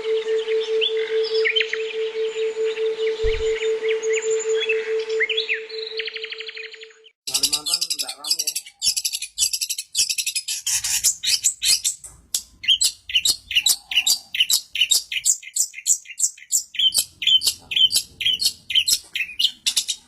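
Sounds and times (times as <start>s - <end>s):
shrike singing: 2.7s - 5.9s, 7.3s - 10.4s.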